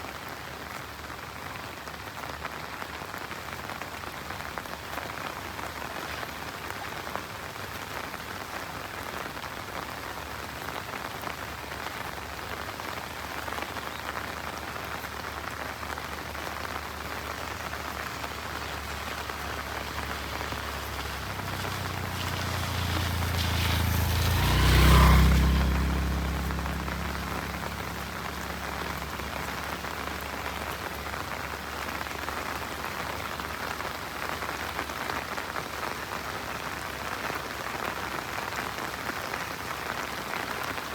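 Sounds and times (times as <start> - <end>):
rain falling on road: 0.0 - 40.9
passing vehicle motor: 18.3 - 30.4.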